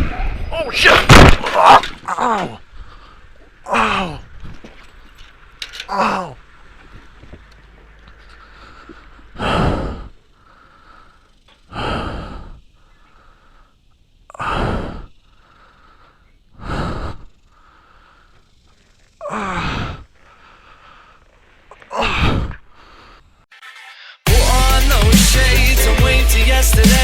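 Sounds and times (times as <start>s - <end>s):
person gasping breaths: 8.3s - 18.4s, 19.3s - 23.4s.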